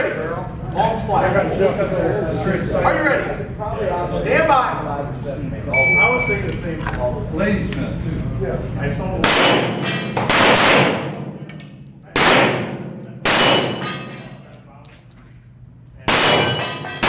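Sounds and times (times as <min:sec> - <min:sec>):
pistol shots with metallic ring: 0:09.3 - 0:14.4, 0:16.1 - 0:17.0.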